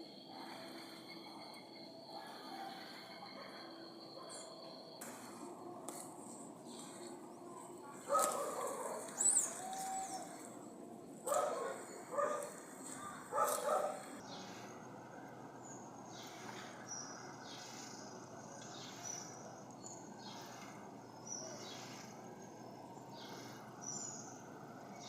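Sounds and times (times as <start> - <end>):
dog barking: 8.0 - 9.4, 11.2 - 14.2.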